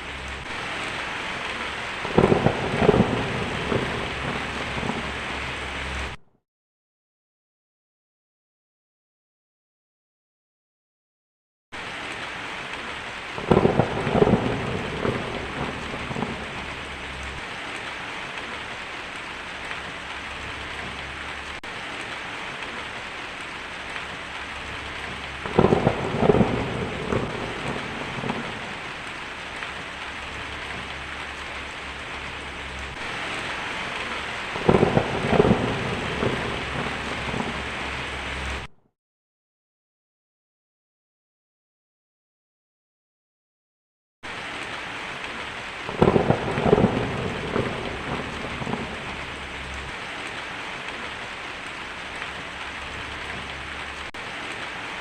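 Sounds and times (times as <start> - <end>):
steady rain falling: 0.0 - 6.2, 11.8 - 38.7, 44.2 - 55.0
thunder claps rumbling: 0.0 - 6.2, 13.2 - 21.8, 22.4 - 38.7, 45.8 - 54.2.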